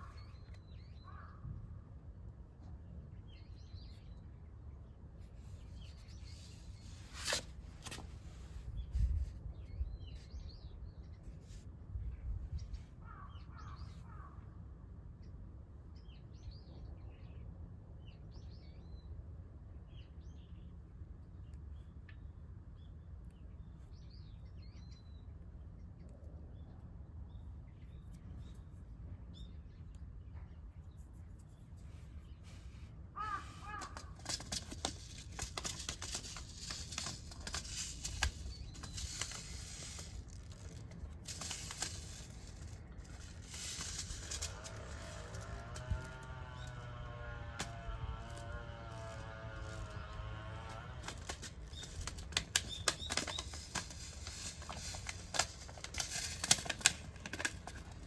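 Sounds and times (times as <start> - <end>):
clicking rustling noise: 5.8 - 8.6, 31.1 - 46.3, 50.6 - 58.0
birds chirping: 33.2 - 40.1.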